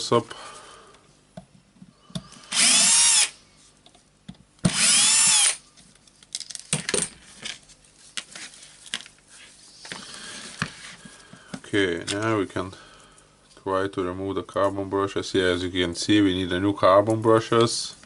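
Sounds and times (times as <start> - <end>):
power screwdriver whirring: 2.5 - 3.3, 4.7 - 5.6
handling small parts: 5.8 - 11.3.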